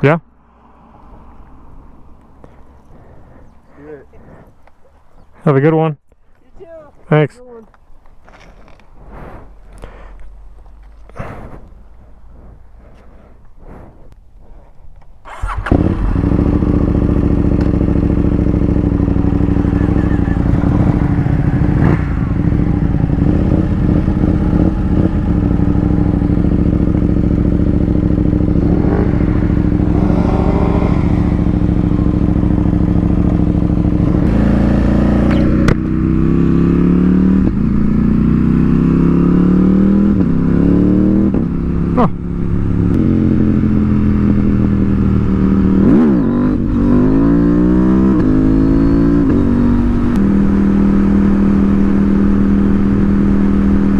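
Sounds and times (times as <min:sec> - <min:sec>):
motorcycle engine accelerating: 0:02.4 - 0:04.6, 0:15.2 - 0:53.9
wind noise: 0:19.5 - 0:34.3.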